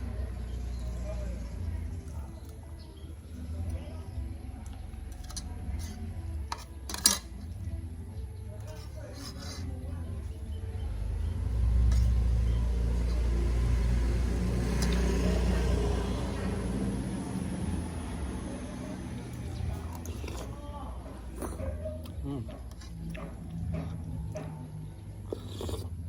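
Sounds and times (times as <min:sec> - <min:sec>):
dishes clinking: 0:06.5 - 0:07.5
vehicle engine passing: 0:10.7 - 0:20.9.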